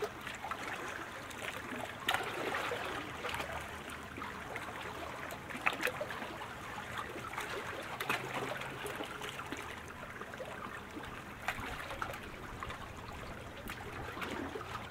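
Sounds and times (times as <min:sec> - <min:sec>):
water lapping around canoe: 0:00.0 - 0:14.9
small sharp splashes: 0:00.5 - 0:03.7.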